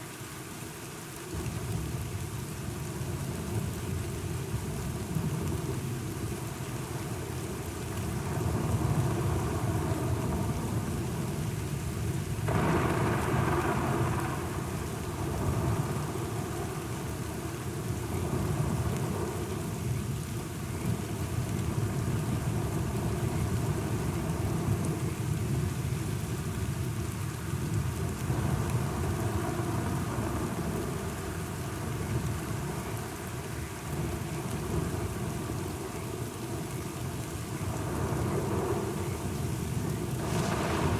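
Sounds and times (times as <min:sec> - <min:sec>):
steady rain: 0:00.0 - 0:40.9
low rolling thunder: 0:12.4 - 0:17.4, 0:37.6 - 0:40.9
loud thunderclap: 0:12.5 - 0:15.9, 0:40.1 - 0:40.9.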